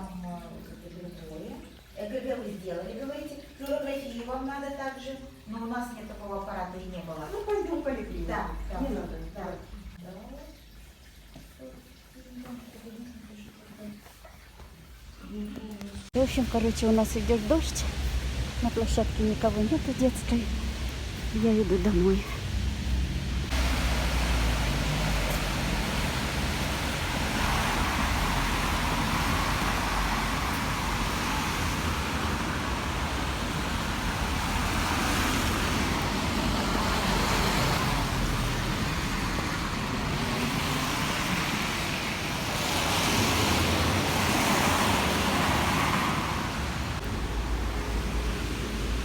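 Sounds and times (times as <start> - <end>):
cars hissing on wet road: 16.1 - 49.0.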